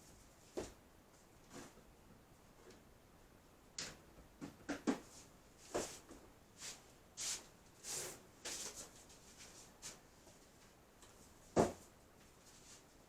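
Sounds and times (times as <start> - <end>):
rustles and scrapes of handling: 5.0 - 13.0.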